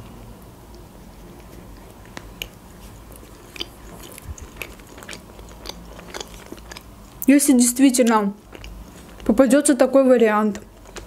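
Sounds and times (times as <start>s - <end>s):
person chewing cake: 0.6s - 7.3s, 8.4s - 9.4s, 10.5s - 11.0s.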